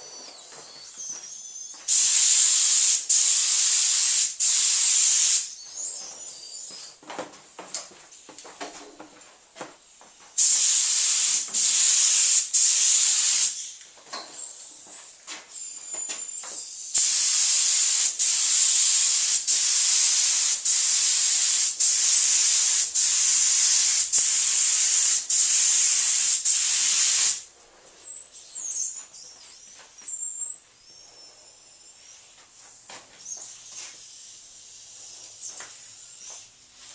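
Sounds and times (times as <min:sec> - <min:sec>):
paint spray gun hissing: 0:01.9 - 0:05.5, 0:10.4 - 0:13.7, 0:16.9 - 0:27.4.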